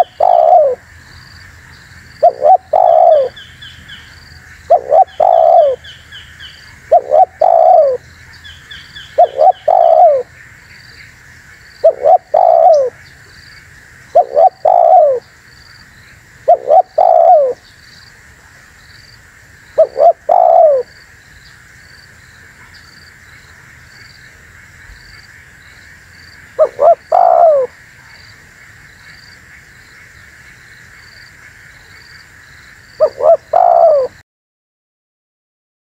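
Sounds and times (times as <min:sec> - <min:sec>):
dove cooing: 0:00.0 - 0:00.8, 0:02.2 - 0:03.4, 0:04.7 - 0:05.9, 0:06.9 - 0:08.0, 0:09.2 - 0:10.3, 0:11.8 - 0:13.0, 0:14.1 - 0:15.2, 0:16.4 - 0:17.6, 0:19.8 - 0:20.9, 0:26.6 - 0:27.8, 0:33.0 - 0:34.2.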